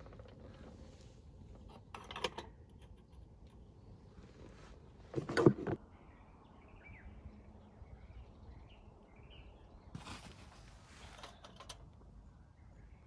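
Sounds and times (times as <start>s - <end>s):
rustle: 10.0s - 12.0s.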